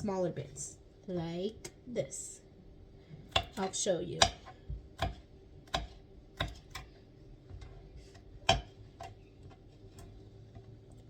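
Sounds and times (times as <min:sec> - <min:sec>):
knife chopping vegetables: 0:03.3 - 0:06.9, 0:08.0 - 0:09.7.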